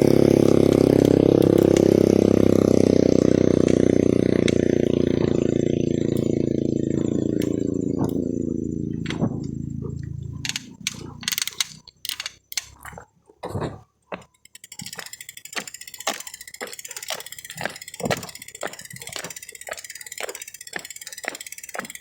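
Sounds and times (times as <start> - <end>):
motorcycle engine: 0.0 - 22.0
frogs croaking in chorus: 4.6 - 13.0
clicks and knocks: 10.2 - 14.6.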